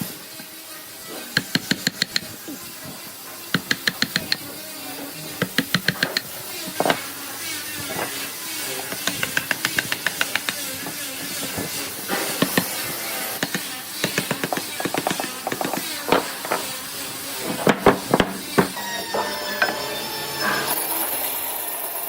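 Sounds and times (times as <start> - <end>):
steady hiss: 0.0 - 19.2
hammer tapping: 1.4 - 2.4, 3.5 - 4.6, 5.4 - 7.0, 8.9 - 11.0, 12.1 - 16.7, 17.4 - 19.8.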